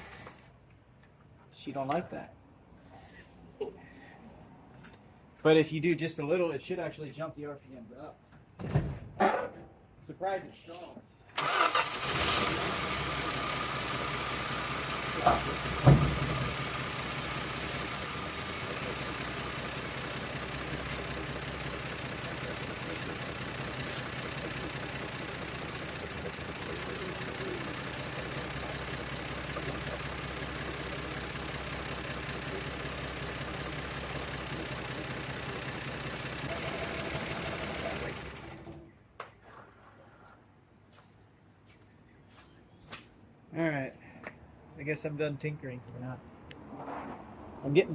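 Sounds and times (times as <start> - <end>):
car engine idling unevenly: 12.1 - 38.8.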